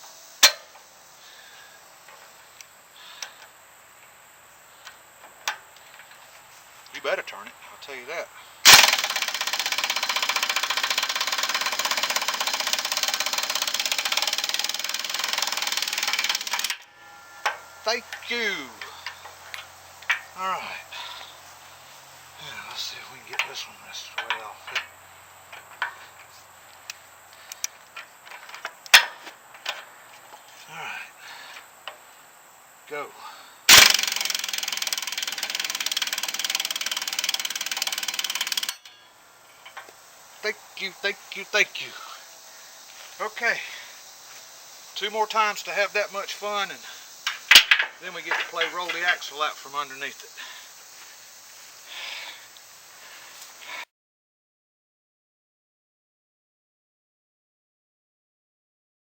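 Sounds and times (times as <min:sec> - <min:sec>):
pneumatic impact wrench hammering: 0:00.4 - 0:00.8, 0:08.6 - 0:20.4, 0:33.7 - 0:40.0, 0:47.2 - 0:49.2.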